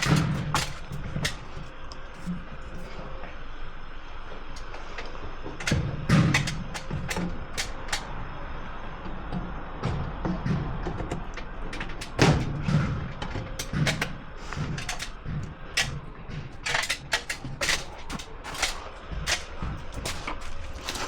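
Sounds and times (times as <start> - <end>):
tools and parts clicking and knocking: 0.0 - 3.0, 4.6 - 8.1, 10.9 - 21.0.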